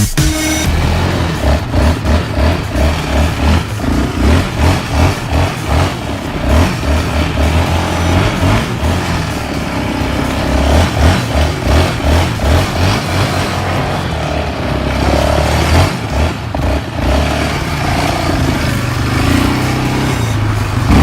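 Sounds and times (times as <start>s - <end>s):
dance music beat: 0.0s - 13.0s
small engine revving: 0.0s - 21.0s.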